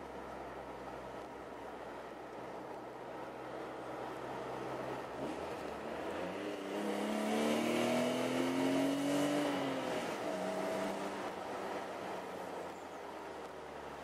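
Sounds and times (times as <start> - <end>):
road noise: 0.0 - 14.0
car engine accelerating: 4.0 - 12.6.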